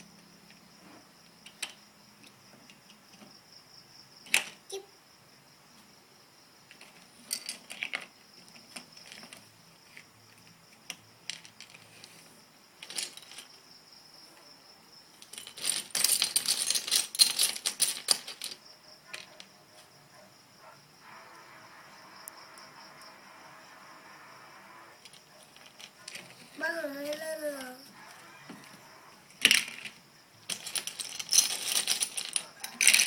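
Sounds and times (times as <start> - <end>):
plastic bricks clicking and rattling: 6.7 - 12.2, 12.8 - 13.5, 15.1 - 19.5, 25.0 - 27.8, 28.6 - 33.0.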